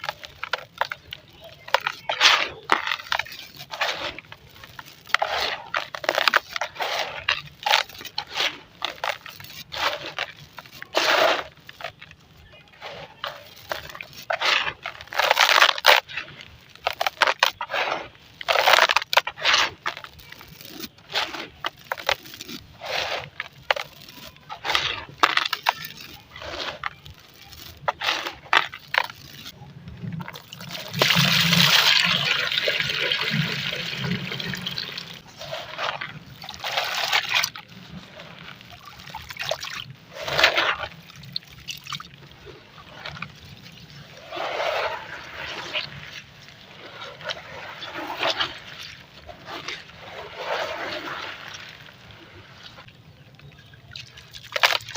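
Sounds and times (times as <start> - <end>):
sand crunching and squelching: 0.0 - 54.9
wet rushing sound: 30.2 - 52.9.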